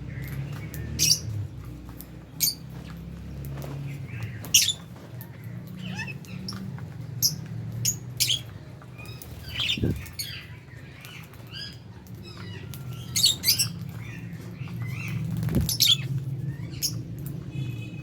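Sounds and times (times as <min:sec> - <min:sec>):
lovebirds chirping and squawking: 0:00.0 - 0:18.0.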